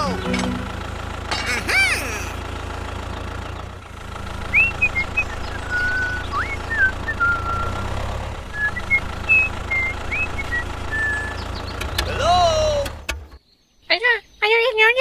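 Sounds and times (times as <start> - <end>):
small engine droning: 0.0 - 13.4
high whistling chirps: 4.5 - 7.9, 8.6 - 11.5.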